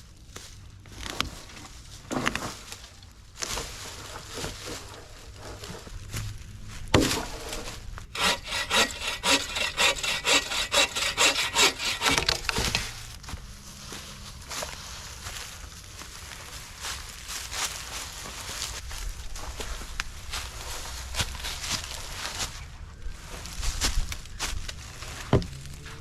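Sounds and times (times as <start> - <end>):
hand saw cutting wood: 7.0 - 13.0.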